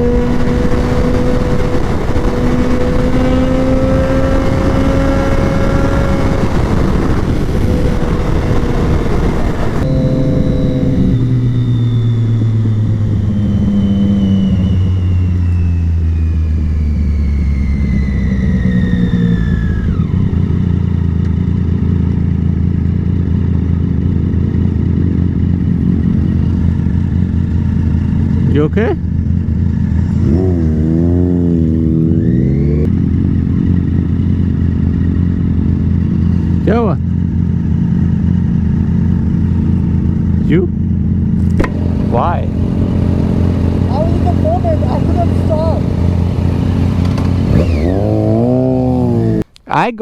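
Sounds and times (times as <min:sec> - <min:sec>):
motorcycle engine running at speed: 0:00.0 - 0:49.5.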